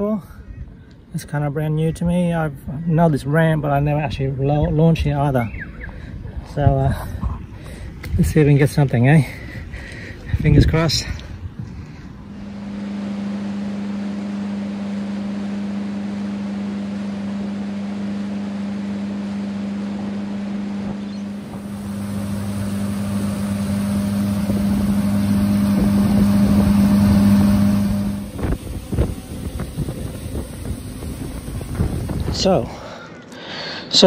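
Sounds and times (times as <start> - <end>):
outboard motor running: 11.2 - 33.0.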